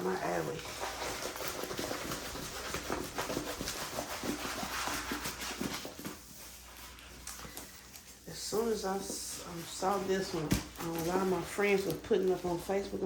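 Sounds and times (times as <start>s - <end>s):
plastic bag rustling and crinkling: 4.4s - 13.0s.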